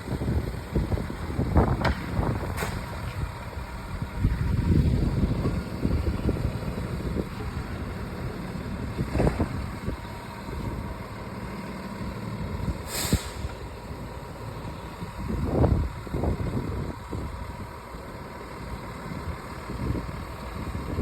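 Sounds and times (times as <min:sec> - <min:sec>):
truck diesel engine running: 0:00.0 - 0:21.0
air hiss: 0:12.8 - 0:13.6.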